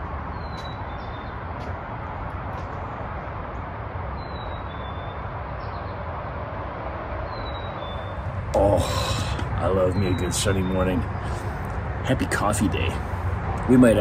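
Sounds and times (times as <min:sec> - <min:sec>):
low outdoor rumble: 0:07.9 - 0:14.0.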